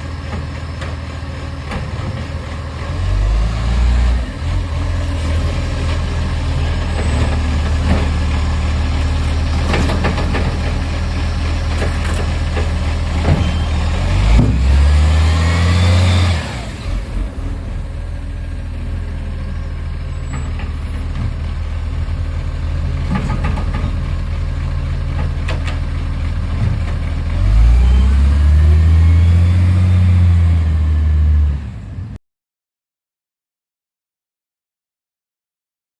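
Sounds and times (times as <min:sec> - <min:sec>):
diesel truck engine revving: 0:00.0 - 0:32.2.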